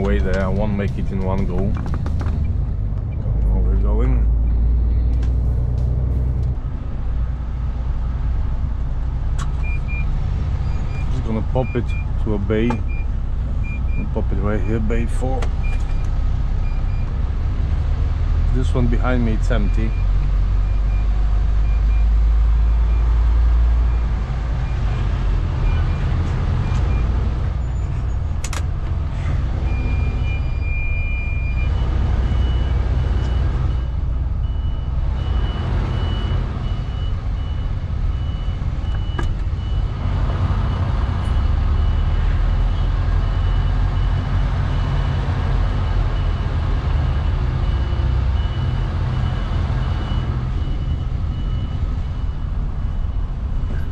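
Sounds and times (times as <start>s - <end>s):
diesel engine running at low revs: 0.0s - 53.9s
reversing alarm beeping: 29.6s - 53.9s.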